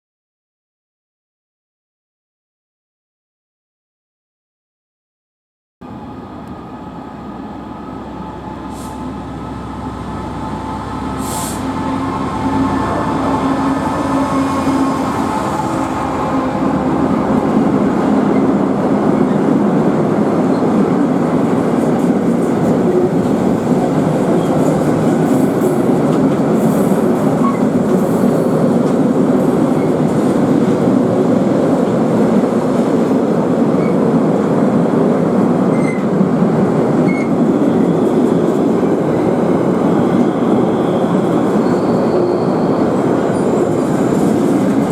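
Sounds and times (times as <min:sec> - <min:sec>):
train passing: 0:05.8 - 0:44.9
brief hisses: 0:11.2 - 0:11.8.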